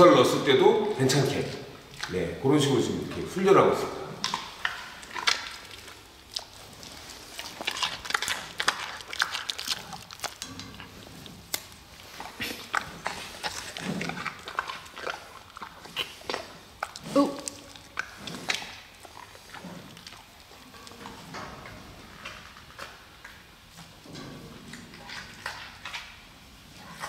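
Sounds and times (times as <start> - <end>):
panda chewing and crunching food: 4.1 - 27.0.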